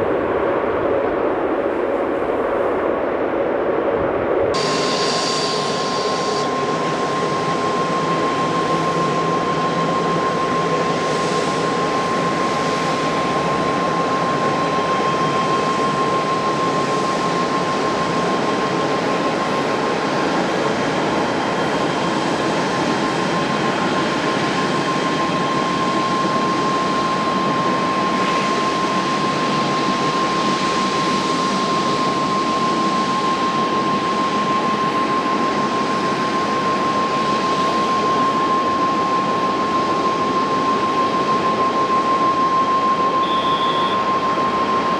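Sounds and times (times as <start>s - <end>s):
high engine whine: 0.0s - 32.1s, 33.1s - 44.9s
jet engines running: 0.0s - 44.9s.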